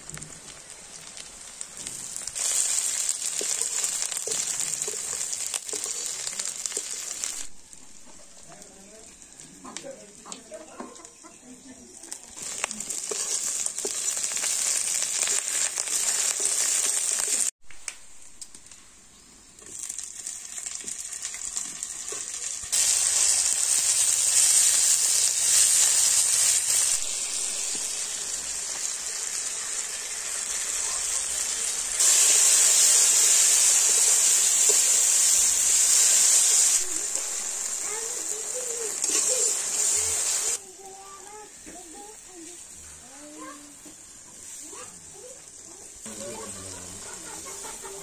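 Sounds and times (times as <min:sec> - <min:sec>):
vegetables sizzling in hot oil: 0:00.0 - 0:48.0.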